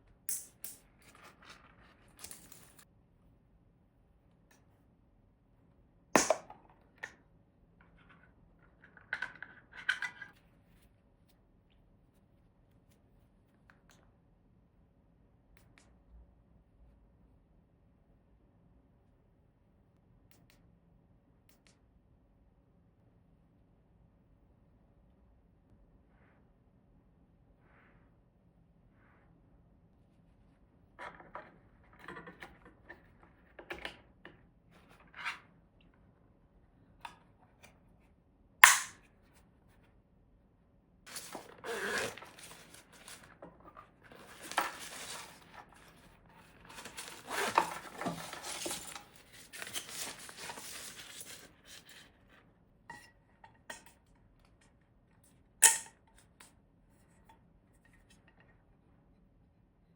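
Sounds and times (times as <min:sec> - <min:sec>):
rustling and scraping: 0:00.9 - 0:02.9, 0:41.1 - 0:52.5.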